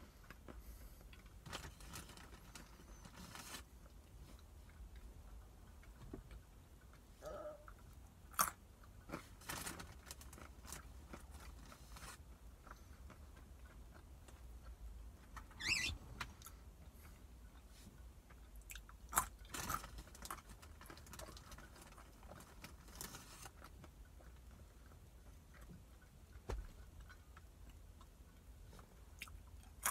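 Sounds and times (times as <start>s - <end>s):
soft chewing: 0.0s - 29.9s.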